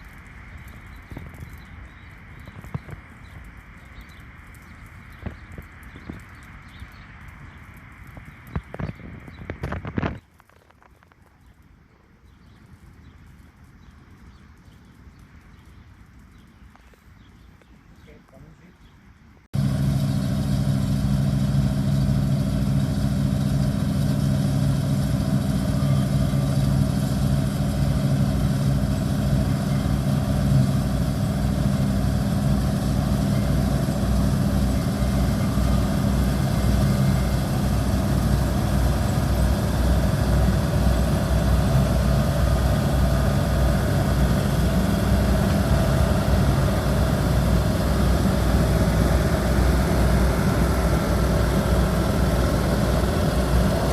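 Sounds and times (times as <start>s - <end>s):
combine harvester engine drone: 0.0s - 10.2s, 19.5s - 53.9s
mechanical rush: 19.6s - 53.9s.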